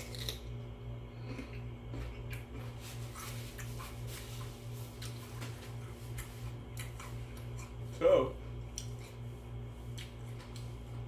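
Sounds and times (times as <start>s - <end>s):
low electrical hum: 0.0s - 11.0s
chewing smacks: 5.0s - 7.8s, 9.9s - 10.8s.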